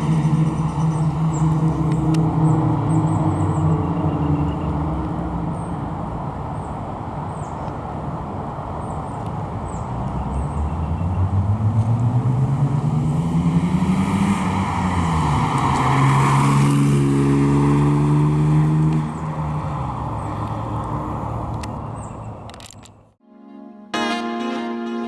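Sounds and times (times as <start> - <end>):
car engine accelerating: 0.0 - 6.4, 9.8 - 21.7.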